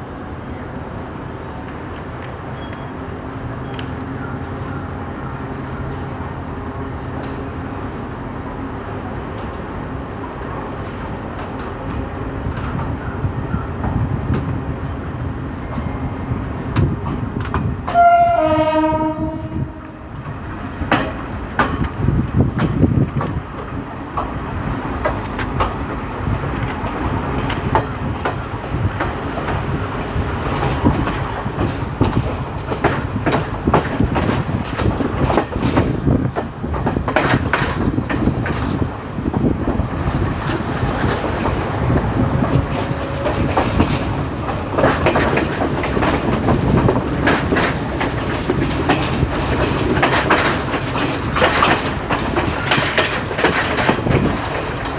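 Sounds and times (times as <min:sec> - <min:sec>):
train running noise: 0:00.0 - 0:54.9
wheels clicking over rail joints: 0:01.5 - 0:54.9
train horn: 0:17.9 - 0:20.2, 0:42.2 - 0:43.8.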